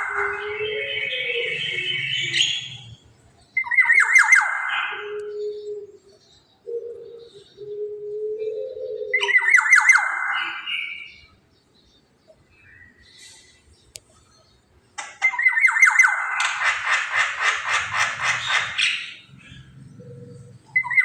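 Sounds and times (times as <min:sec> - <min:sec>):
bird squawking raspy calls: 0:00.0 - 0:03.0, 0:03.6 - 0:05.4, 0:15.0 - 0:21.0.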